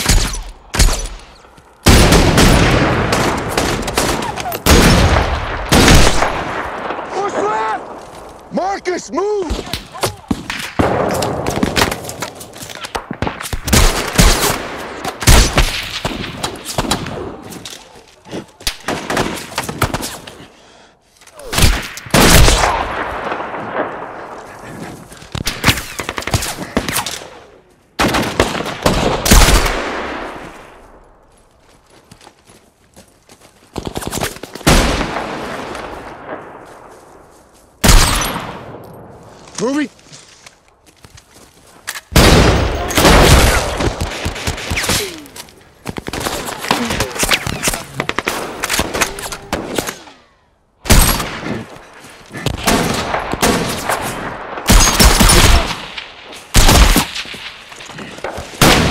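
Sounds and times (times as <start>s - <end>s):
rifle shots: 1.9s - 7.1s, 52.6s - 57.6s.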